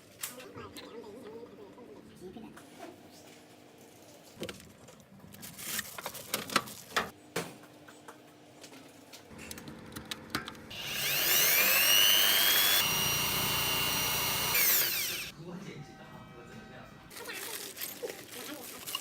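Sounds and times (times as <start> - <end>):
electric drill whining: 10.7 - 15.3.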